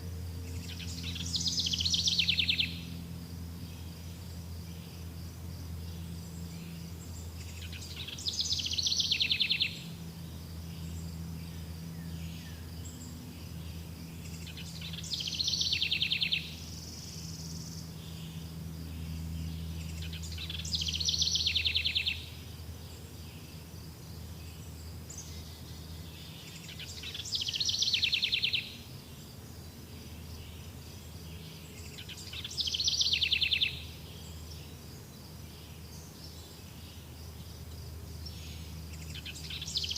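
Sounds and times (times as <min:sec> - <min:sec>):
songbird song ending in trill: 0:00.0 - 0:04.9, 0:06.6 - 0:10.0, 0:14.2 - 0:22.4, 0:30.4 - 0:34.8, 0:38.2 - 0:39.9.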